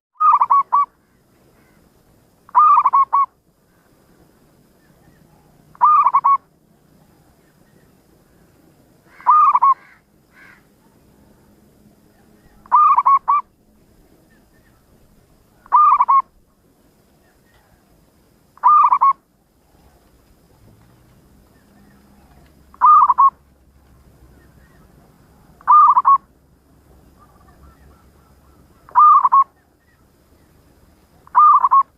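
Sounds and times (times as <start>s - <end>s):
dove cooing calls: 0.2s - 1.8s, 2.5s - 3.9s, 4.8s - 8.4s, 9.0s - 11.5s, 12.1s - 13.5s, 14.2s - 17.8s, 18.6s - 20.2s, 21.3s - 23.4s, 24.2s - 26.4s, 27.0s - 31.9s.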